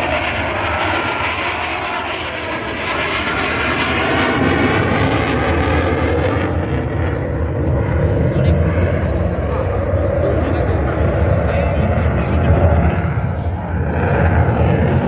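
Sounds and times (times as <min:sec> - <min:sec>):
jet aircraft engine roar: 0:00.0 - 0:15.0.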